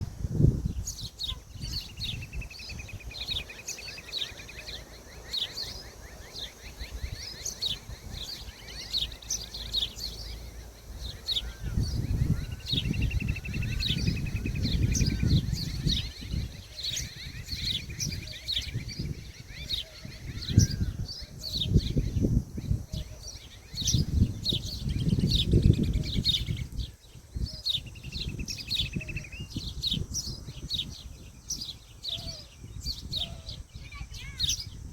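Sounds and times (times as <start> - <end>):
birds chirping: 0.7 - 34.9
bird trill: 0.9 - 22.2.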